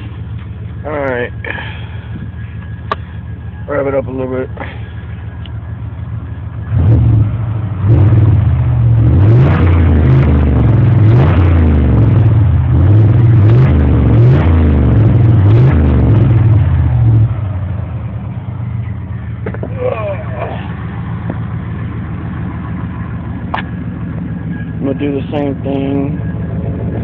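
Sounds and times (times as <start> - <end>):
truck engine revving: 6.3 - 27.0.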